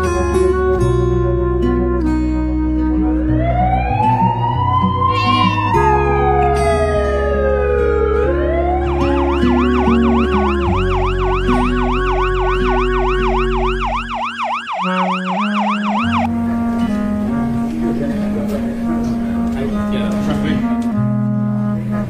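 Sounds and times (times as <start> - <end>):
background music with bass notes: 0.0 - 22.0
siren yelping: 3.2 - 16.3.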